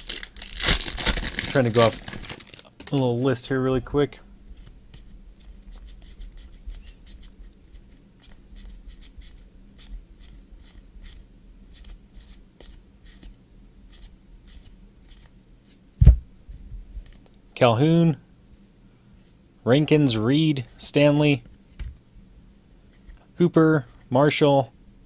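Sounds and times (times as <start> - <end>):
sharp thump: 16.0 - 16.3.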